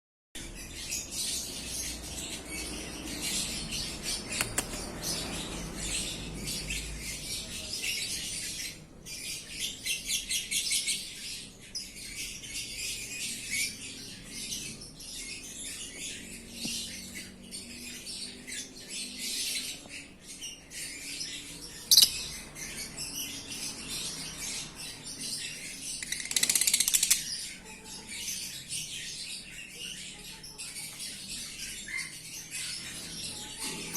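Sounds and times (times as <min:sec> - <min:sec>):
lovebirds chirping and squeaking: 0:00.4 - 0:33.9
sharp click: 0:04.4 - 0:04.8.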